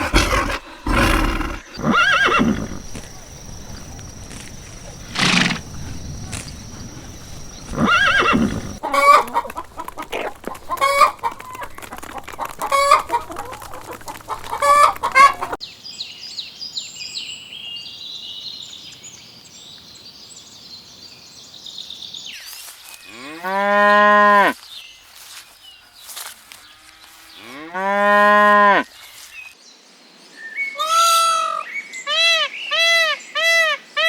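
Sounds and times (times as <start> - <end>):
loud animal calls: 0.0 - 15.6
chickens clucking: 2.8 - 15.6.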